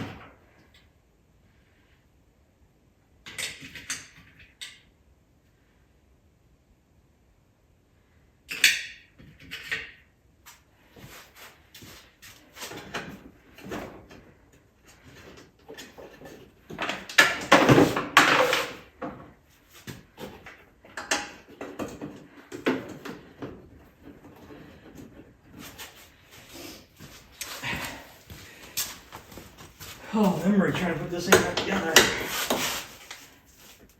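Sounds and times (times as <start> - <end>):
parts and tools clattering: 11.8 - 33.9.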